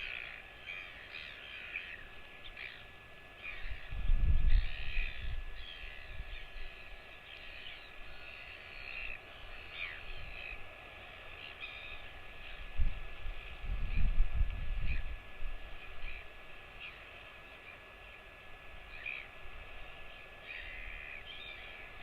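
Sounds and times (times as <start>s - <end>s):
birds chirping and calling: 0.0s - 12.8s, 14.8s - 15.2s, 15.8s - 17.8s, 18.9s - 22.0s.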